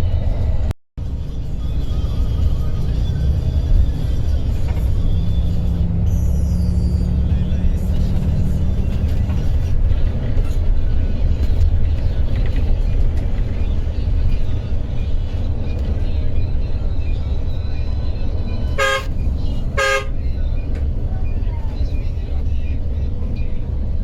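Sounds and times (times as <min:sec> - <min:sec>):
coach driving on highway: 0:00.0 - 0:24.0
vehicle horn blasts: 0:18.7 - 0:20.2.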